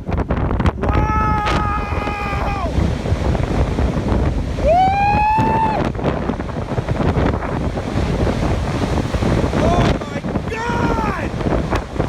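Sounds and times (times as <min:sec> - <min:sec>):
strong wind buffeting microphone: 0:00.0 - 0:12.0
high drawn-out shout: 0:00.9 - 0:02.8, 0:04.6 - 0:05.8, 0:10.5 - 0:11.3.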